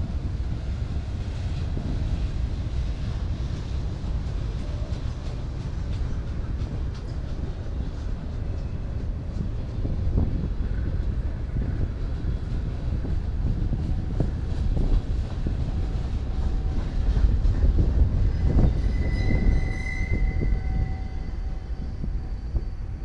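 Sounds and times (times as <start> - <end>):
freight train rumbling past: 0.0 - 23.0
steel wheel squeal: 16.5 - 23.0.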